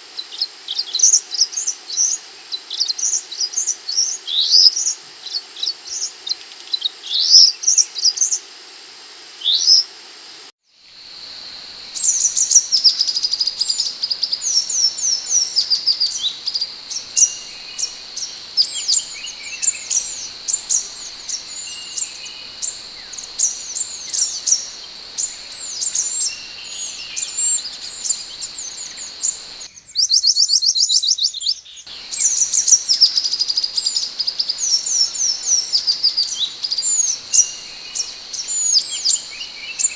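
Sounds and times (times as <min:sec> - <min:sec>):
bird chirping: 0:11.1 - 0:30.3, 0:31.4 - 0:39.9.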